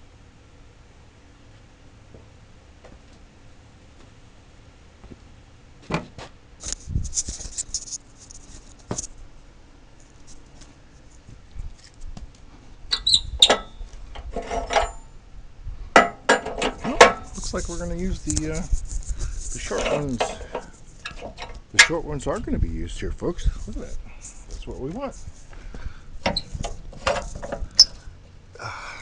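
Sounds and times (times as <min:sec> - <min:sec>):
knocks clicks and rustling: 0:26.2 - 0:28.0.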